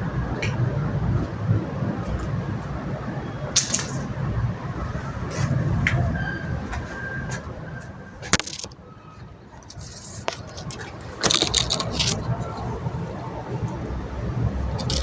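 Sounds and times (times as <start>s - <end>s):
low rumble: 0.0s - 8.1s.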